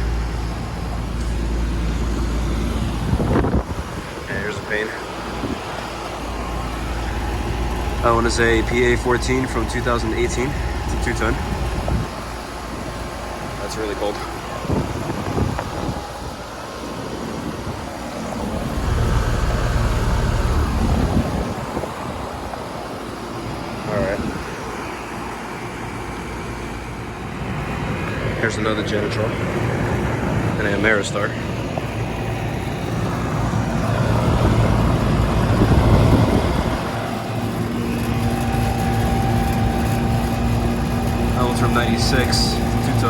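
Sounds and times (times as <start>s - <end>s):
air conditioner units whooshing: 0.0s - 43.0s
deep rumble: 18.2s - 22.5s
humming tone: 18.3s - 22.3s, 35.0s - 43.0s.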